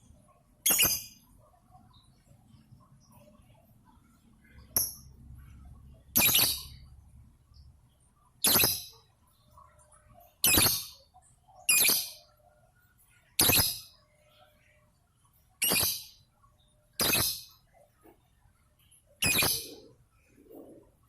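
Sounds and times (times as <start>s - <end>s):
lovebird calling: 6.2s - 6.8s, 19.2s - 20.0s.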